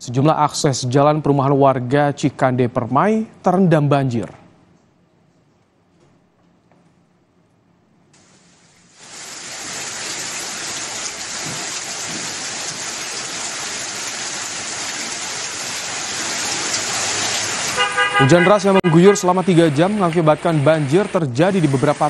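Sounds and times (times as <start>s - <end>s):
heavy rain on a flooded street: 9.0s - 18.2s.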